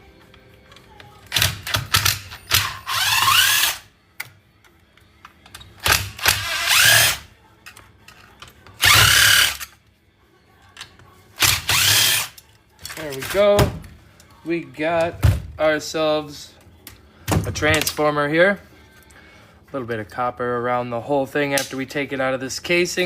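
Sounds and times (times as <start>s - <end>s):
power drill whining: 2.5s - 3.9s, 6.3s - 7.2s, 8.8s - 9.6s, 11.4s - 12.4s.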